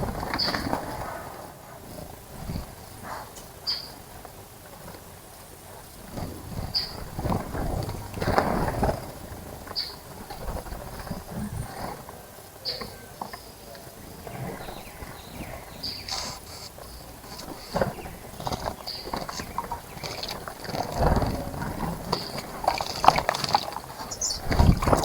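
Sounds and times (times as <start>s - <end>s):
birds splashing in water: 6.1s - 25.0s.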